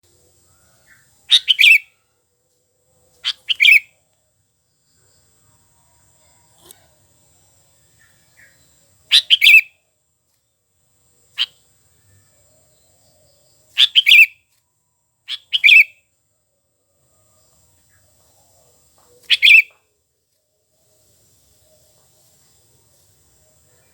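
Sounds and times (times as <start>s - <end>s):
bulbul calling: 0.9s - 1.9s, 3.2s - 3.9s, 8.0s - 9.8s, 11.4s - 11.6s, 13.7s - 14.4s, 15.3s - 16.0s, 19.1s - 19.8s.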